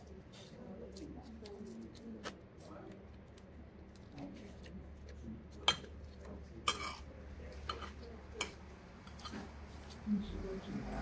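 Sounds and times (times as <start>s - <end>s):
cutlery clinking on a plate: 6.6s - 9.5s.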